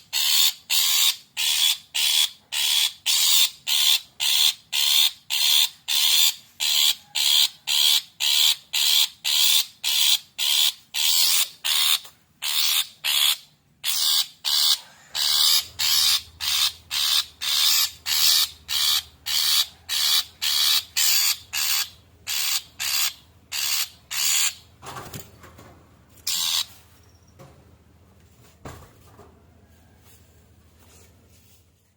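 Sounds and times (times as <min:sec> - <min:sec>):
shrike harsh rasping calls: 0:00.1 - 0:24.7, 0:26.2 - 0:26.8.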